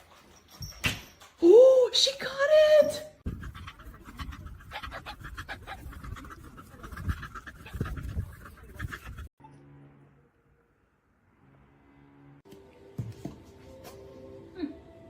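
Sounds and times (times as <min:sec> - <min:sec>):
dog panting rapidly: 0:03.2 - 0:09.3.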